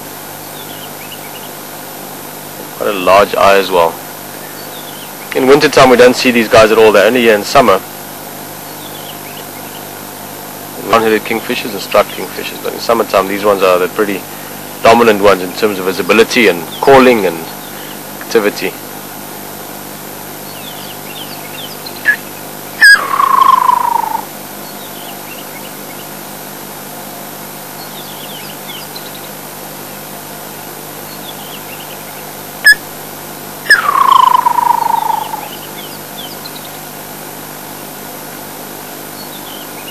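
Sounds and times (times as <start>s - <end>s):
faint bird chirps: 8.6s - 10.0s, 20.2s - 26.2s, 27.7s - 29.4s, 31.0s - 32.9s, 33.7s - 36.8s, 39.2s - 39.9s
kingfisher trilling call: 20.4s - 26.2s, 33.6s - 36.7s.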